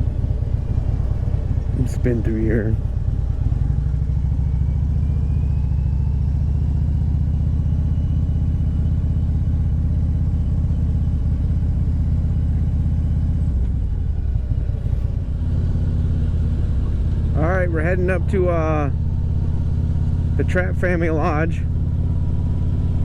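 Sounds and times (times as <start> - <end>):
faint wind noise: 0.0 - 3.8
motorcycle engine running: 0.0 - 23.0.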